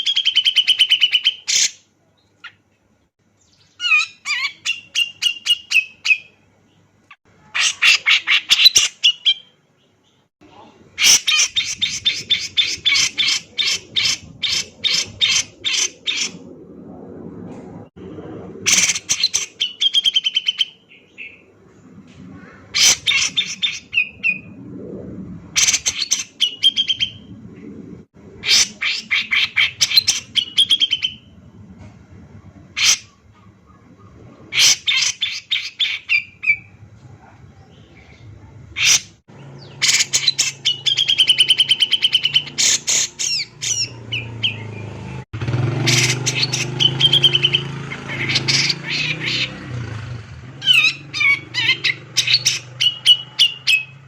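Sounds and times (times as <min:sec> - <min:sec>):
bird singing sharp high notes: 0:45.7 - 0:49.5.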